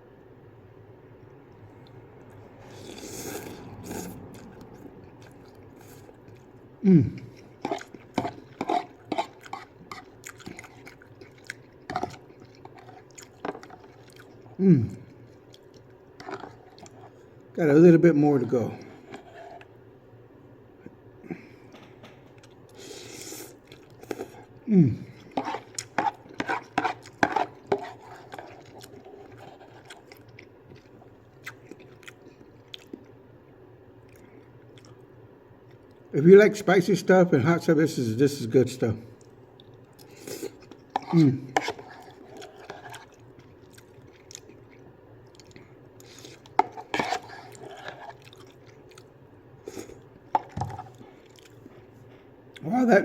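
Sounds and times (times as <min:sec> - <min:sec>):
wet chewing smacks: 0:07.2 - 0:17.1, 0:25.1 - 0:33.2, 0:39.2 - 0:51.9.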